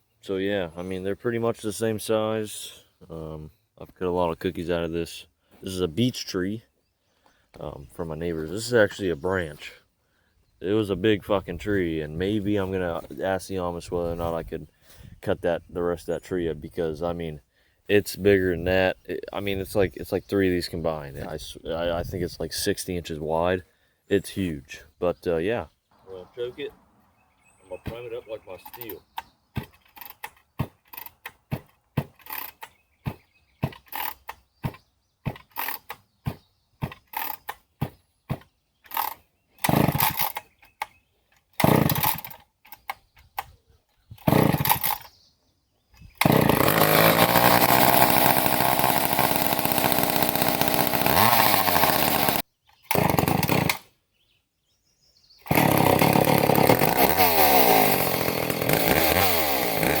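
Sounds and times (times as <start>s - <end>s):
chainsaw starter rattles: 28.6s - 43.6s, 44.2s - 45.2s, 46.0s - 53.9s, 55.4s - 60.0s
chainsaw engine running: 38.9s - 40.4s, 41.6s - 42.5s, 44.2s - 45.1s, 46.2s - 53.9s, 55.4s - 60.0s.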